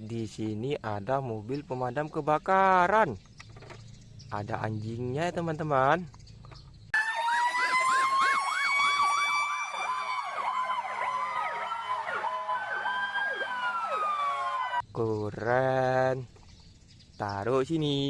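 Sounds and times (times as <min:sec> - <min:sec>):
fire engine siren: 0:07.0 - 0:14.8.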